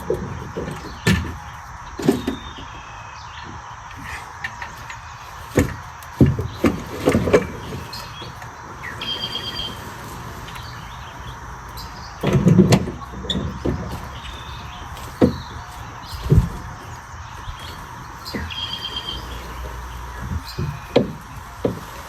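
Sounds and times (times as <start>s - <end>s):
irregular knocks and thumps: 3.4s - 8.4s, 11.4s - 18.6s, 19.2s - 22.0s.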